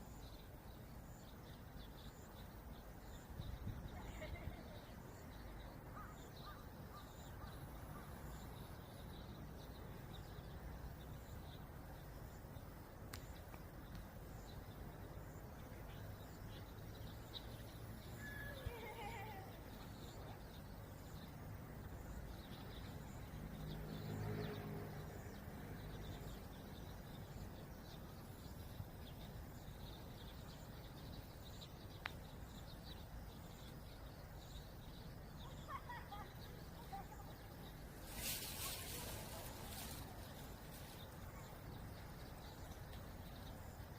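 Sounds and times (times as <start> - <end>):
faint bird chirps: 0.0 - 23.8
wind rumbling on microphone: 3.3 - 4.7
wavering falling bird call: 18.1 - 20.2.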